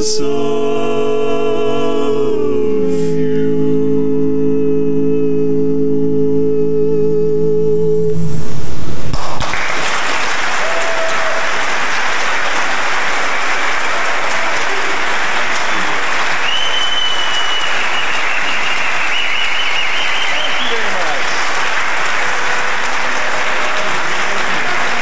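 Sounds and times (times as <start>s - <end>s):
vocal quartet chord: 0.0s - 6.2s
audience applause: 9.4s - 25.0s.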